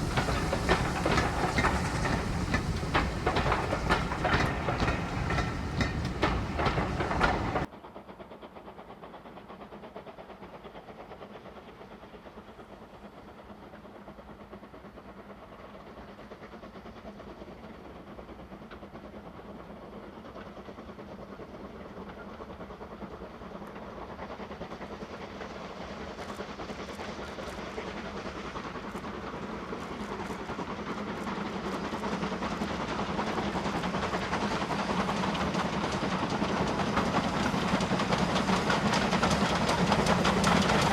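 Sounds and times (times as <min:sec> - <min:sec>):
steam train approaching: 0:00.0 - 0:40.9.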